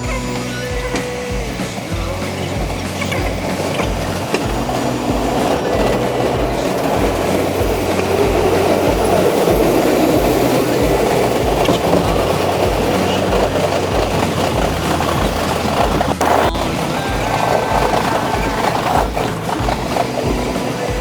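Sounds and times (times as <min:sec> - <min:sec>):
subway train wheels rumbling on rails: 0:00.0 - 0:21.0.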